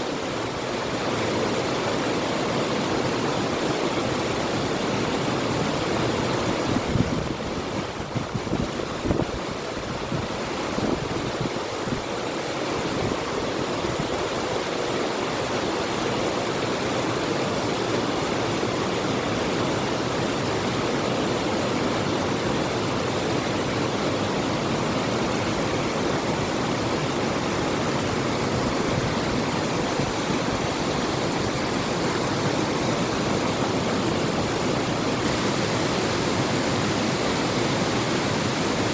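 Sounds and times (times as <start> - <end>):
river water rushing: 0.0 - 38.9
wind gusts on microphone: 5.8 - 14.9, 22.0 - 38.9.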